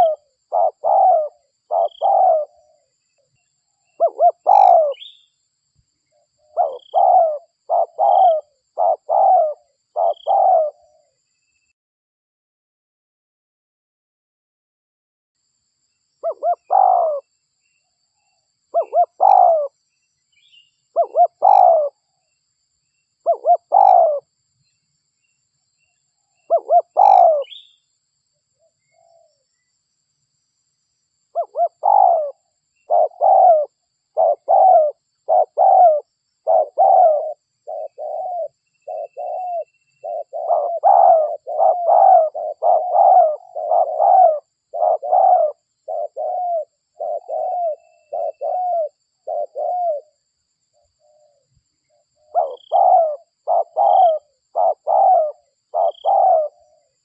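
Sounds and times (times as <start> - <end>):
dove cooing: 0.0 - 2.9, 3.8 - 5.3, 6.4 - 11.2, 16.2 - 17.3, 18.7 - 19.8, 20.9 - 22.0, 23.2 - 24.3, 26.4 - 27.8, 31.3 - 50.2, 51.0 - 57.0.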